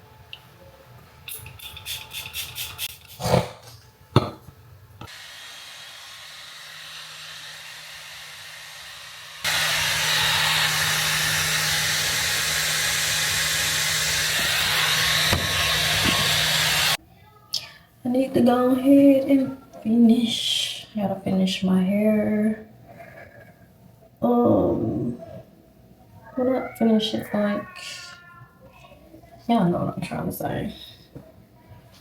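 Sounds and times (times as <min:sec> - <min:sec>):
hair dryer blowing: 0:05.1 - 0:17.0.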